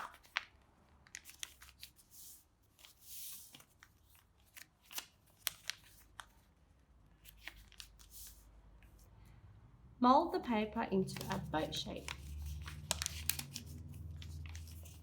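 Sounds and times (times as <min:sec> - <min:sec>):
paper crinkling clicks: 0:00.0 - 0:02.0, 0:02.8 - 0:06.5, 0:11.1 - 0:15.0
paper being folded and creased: 0:00.0 - 0:09.1, 0:11.1 - 0:15.0.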